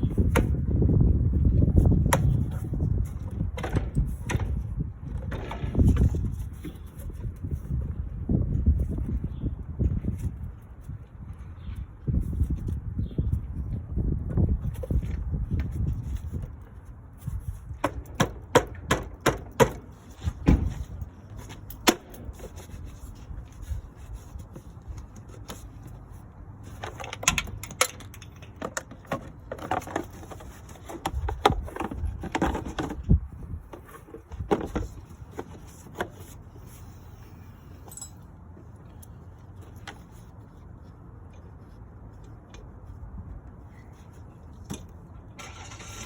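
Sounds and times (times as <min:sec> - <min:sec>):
metal tools clicking and knocking: 0:26.7 - 0:32.6, 0:37.8 - 0:38.3.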